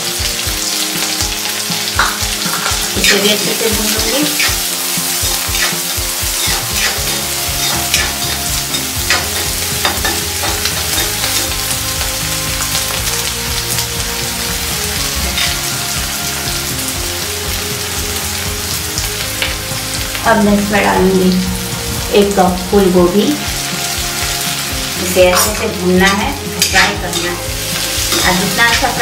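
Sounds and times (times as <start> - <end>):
onions sizzling in hot oil: 0.0 - 29.0
metal spoon scraping a pan: 2.0 - 11.7, 15.3 - 15.7.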